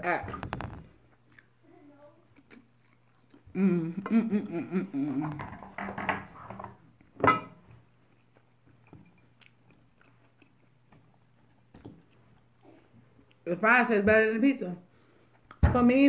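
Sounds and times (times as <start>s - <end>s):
person chewing fries: 0.9s - 1.6s, 2.2s - 3.6s, 7.9s - 13.4s
person humming: 3.5s - 5.4s.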